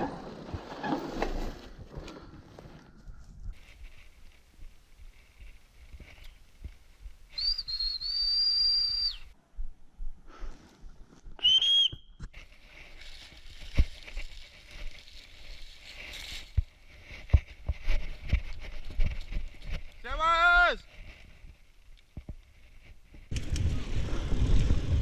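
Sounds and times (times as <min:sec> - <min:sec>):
bike rattling over rough trail: 0:00.0 - 0:02.8, 0:12.3 - 0:20.1, 0:20.9 - 0:25.0.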